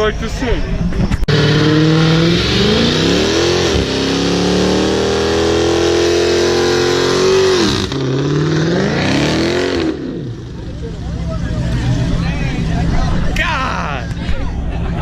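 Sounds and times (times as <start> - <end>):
car engine revving hard: 1.3 - 10.4.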